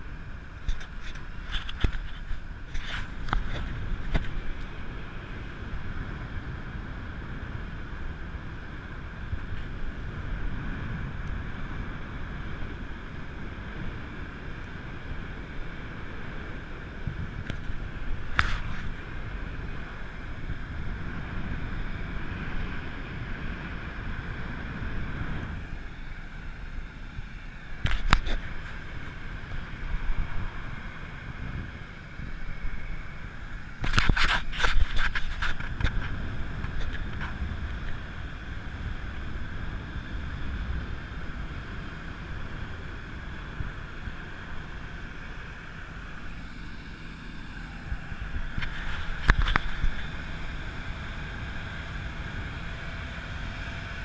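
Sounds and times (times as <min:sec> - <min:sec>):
boat engine rumble: 0:00.0 - 0:54.0
wind buffeting microphone: 0:27.1 - 0:46.4, 0:47.4 - 0:54.0.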